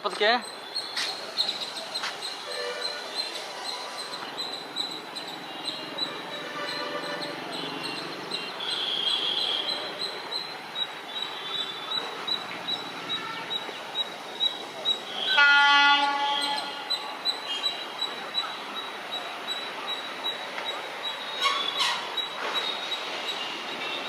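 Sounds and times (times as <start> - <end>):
locomotive horn: 15.2 - 16.8.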